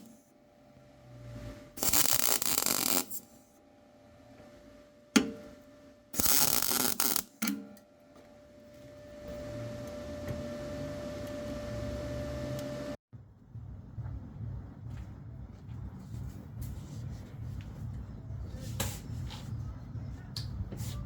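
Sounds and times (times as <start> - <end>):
welding arc crackle: 1.8 - 3.3, 6.2 - 7.4.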